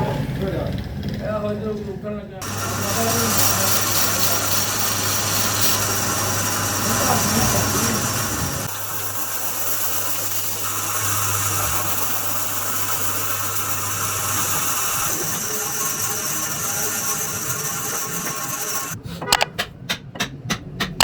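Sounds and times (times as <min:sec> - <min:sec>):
mechanical motor running: 0:02.4 - 0:19.0.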